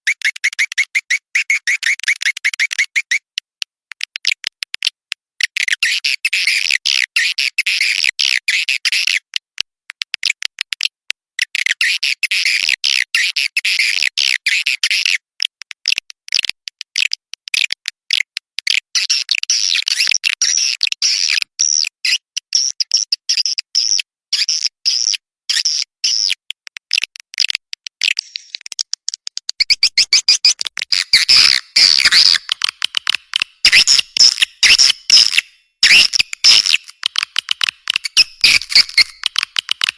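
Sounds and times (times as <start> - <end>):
bird chirping: 28.2 - 39.4.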